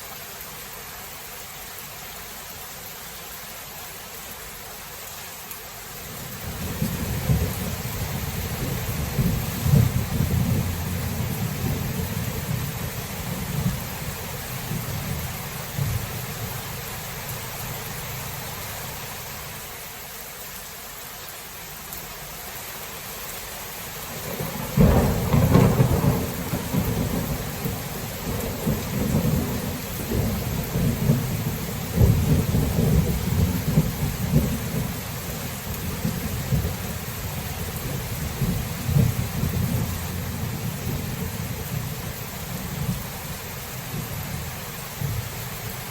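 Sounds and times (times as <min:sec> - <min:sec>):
steady rain: 0:00.0 - 0:45.9
rolling thunder: 0:06.4 - 0:16.5, 0:24.2 - 0:35.0
loud thunderclap: 0:06.6 - 0:12.8, 0:24.2 - 0:34.9.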